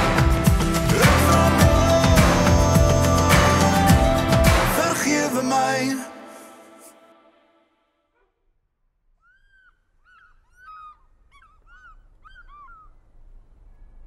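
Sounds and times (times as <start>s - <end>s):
bird calling: 9.2s - 14.0s.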